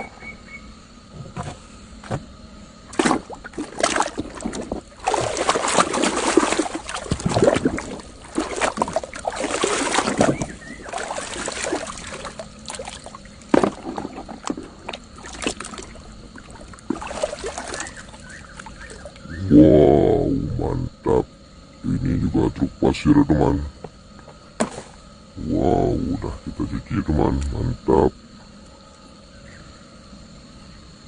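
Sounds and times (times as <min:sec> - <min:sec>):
water splashing and sloshing: 0:01.3 - 0:19.4, 0:23.9 - 0:25.1.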